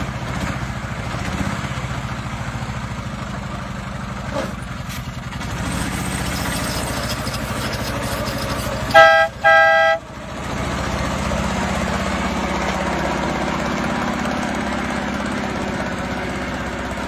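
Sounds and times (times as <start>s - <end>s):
engine idling: 0.0s - 17.0s
two-note vehicle horn: 8.9s - 10.0s.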